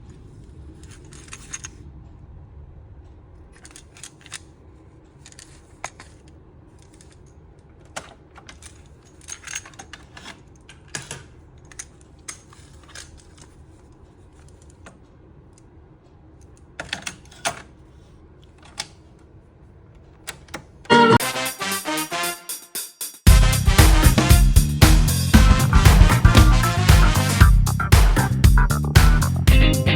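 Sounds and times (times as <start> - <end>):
faint low hum: 0.0 - 21.2
plastic clicks and clatters: 5.1 - 13.6.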